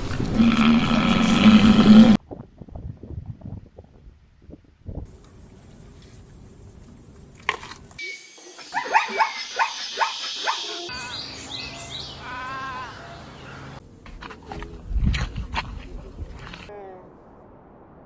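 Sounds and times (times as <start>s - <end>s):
animal barking calls: 0.0s - 2.2s, 8.7s - 10.9s.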